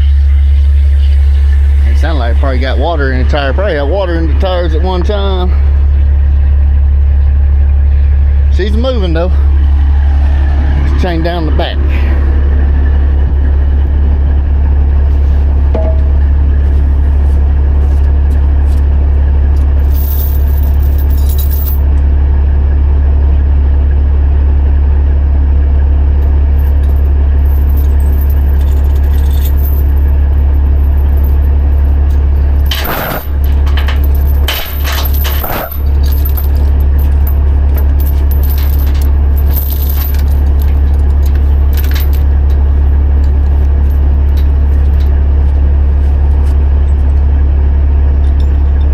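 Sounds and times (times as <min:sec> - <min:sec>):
diesel engine idling: 0:00.0 - 0:48.9
chains clinking and rattling: 0:19.6 - 0:22.0, 0:26.5 - 0:47.2, 0:48.2 - 0:48.9.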